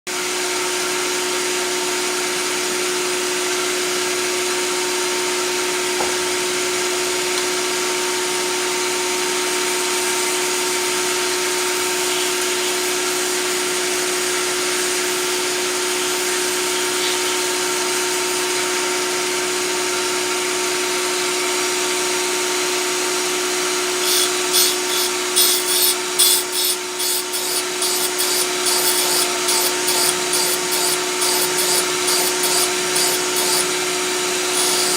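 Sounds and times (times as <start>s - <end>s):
grinder humming: 23.7s - 34.9s
blade grinding on wheel: 24.0s - 34.9s.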